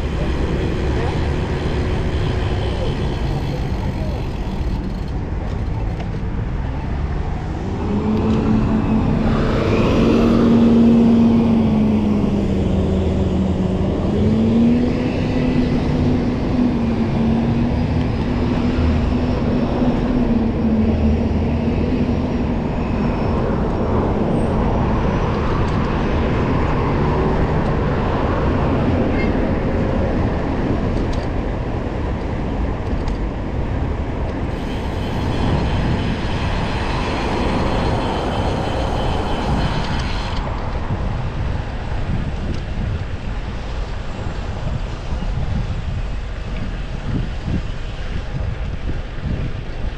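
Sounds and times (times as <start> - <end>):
road noise: 0.0 - 49.9
vehicle engine hum: 0.0 - 49.9.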